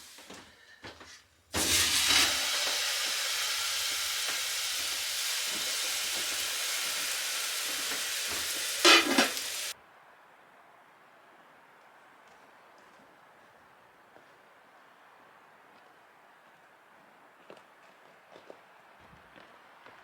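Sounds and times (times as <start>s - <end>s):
pan clatter: 1.6s - 9.7s
food sizzling in a frying pan: 1.6s - 9.8s.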